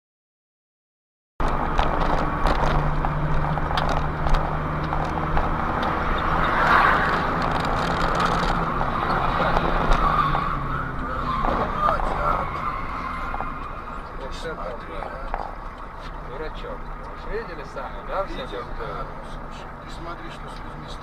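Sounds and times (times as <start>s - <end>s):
small clicks and knocks: 1.4s - 6.0s, 7.4s - 8.6s
car engine hum: 1.4s - 21.0s
road noise: 1.4s - 21.0s.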